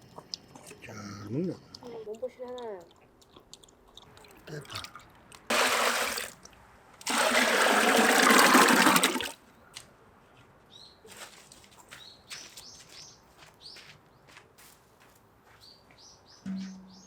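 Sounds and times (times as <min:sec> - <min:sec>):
water pouring: 0:04.2 - 0:06.4, 0:07.0 - 0:09.4
faint bird chirps: 0:15.6 - 0:17.0.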